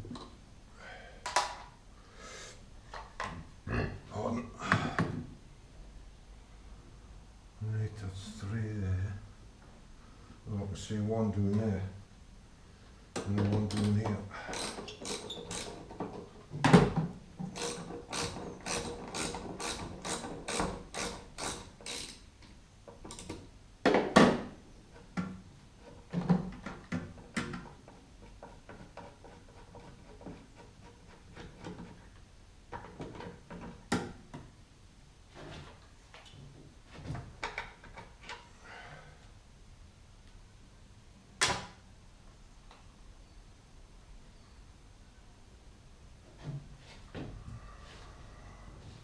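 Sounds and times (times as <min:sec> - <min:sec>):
ratchet wrench clicking: 0:14.5 - 0:15.7, 0:17.6 - 0:22.2.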